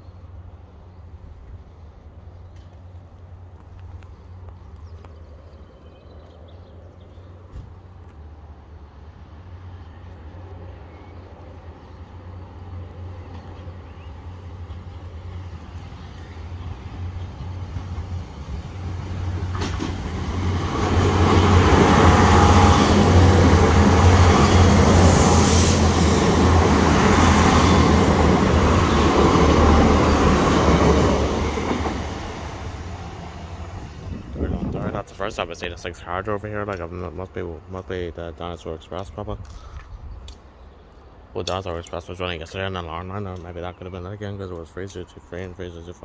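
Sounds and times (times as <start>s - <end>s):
diesel train engines: 0.0s - 46.0s
train wheels rumbling on rails: 12.1s - 36.9s.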